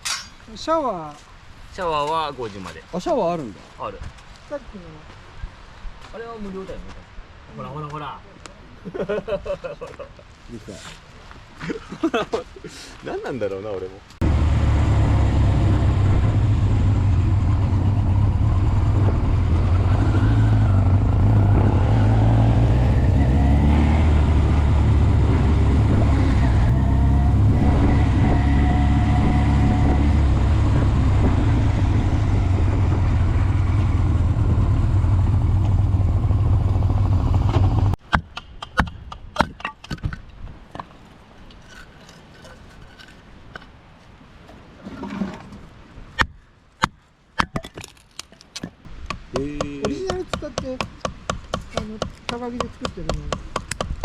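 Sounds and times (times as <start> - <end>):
engine running loudly: 14.2 - 37.9.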